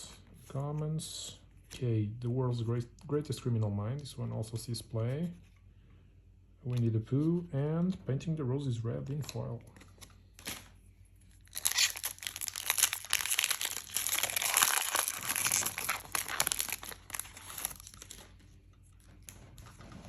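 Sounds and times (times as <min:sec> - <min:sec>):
plastic wrapper crinkling and tearing: 0:11.3 - 0:19.1.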